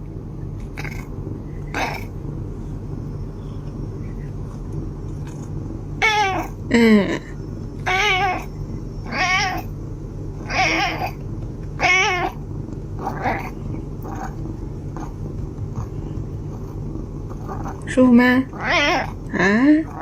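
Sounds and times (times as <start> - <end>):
cat meowing: 6.0 - 6.6, 7.8 - 8.5, 9.1 - 9.7, 10.4 - 11.2, 11.8 - 12.4, 13.0 - 14.4, 18.5 - 19.2.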